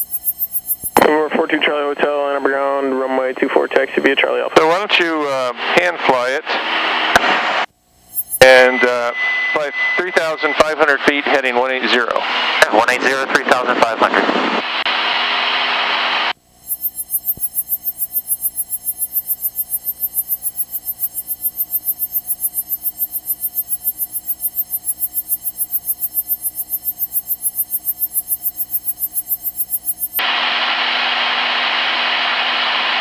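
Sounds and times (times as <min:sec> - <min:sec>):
electronic pulsing buzz: 0:00.0 - 0:01.0, 0:06.6 - 0:12.8, 0:14.6 - 0:32.6
aircraft engine noise: 0:00.0 - 0:33.0.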